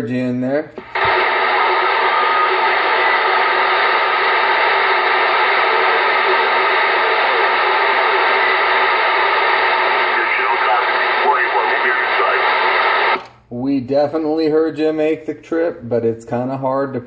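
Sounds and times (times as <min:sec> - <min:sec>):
faint radio whistles: 0:00.8 - 0:13.2
radio static hiss: 0:00.8 - 0:13.2.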